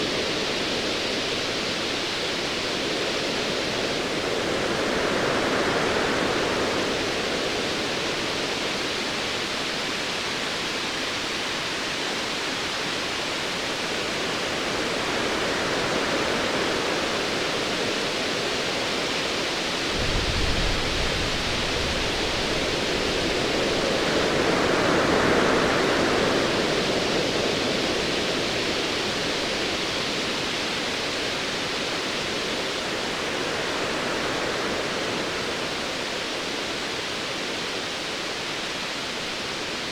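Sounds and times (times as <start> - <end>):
distant thunder rolling: 20.0 - 23.3.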